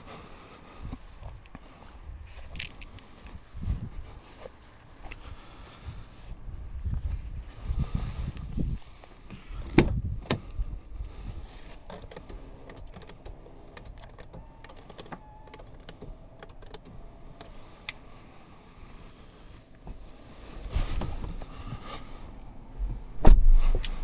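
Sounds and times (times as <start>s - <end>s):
switches clicking: 11.8s - 18.1s.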